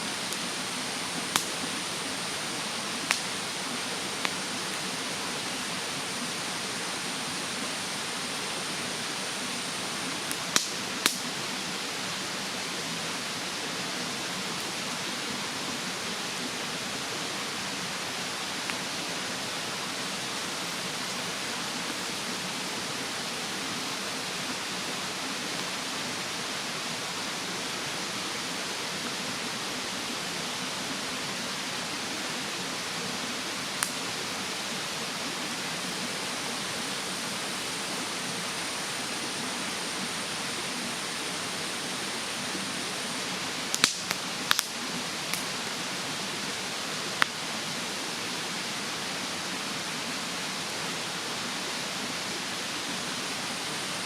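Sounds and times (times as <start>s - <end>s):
mountain stream rushing: 0.0s - 54.0s
wood fire crackling: 0.1s - 2.0s, 2.7s - 4.9s, 9.9s - 11.2s, 43.6s - 45.6s.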